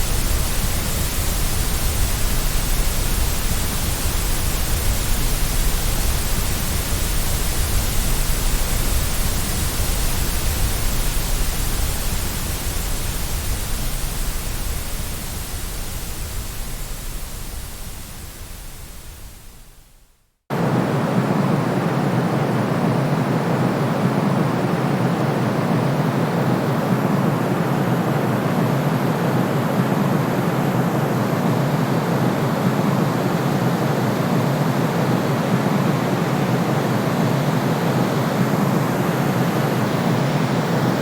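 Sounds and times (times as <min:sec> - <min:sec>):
dull hiss: 0:00.0 - 0:20.0
white noise hiss: 0:00.0 - 0:41.0.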